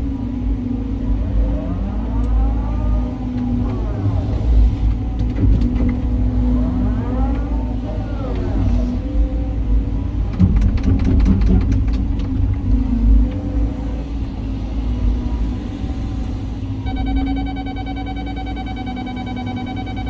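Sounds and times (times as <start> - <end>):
excavator diesel engine rumbling: 0.0 - 20.0
metallic clanks and knocks: 10.3 - 12.7
high electronic tone: 16.8 - 20.0.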